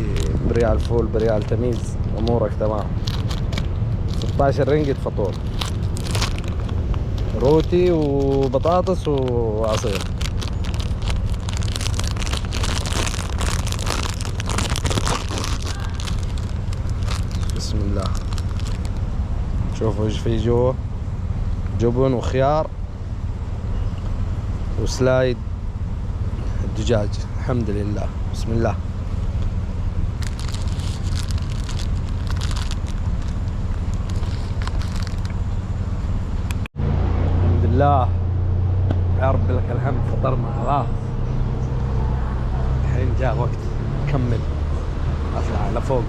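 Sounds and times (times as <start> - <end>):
sandwich packaging crinkling: 0.0 - 1.9, 2.6 - 19.0, 30.2 - 35.3
steady low rumble: 0.0 - 46.0.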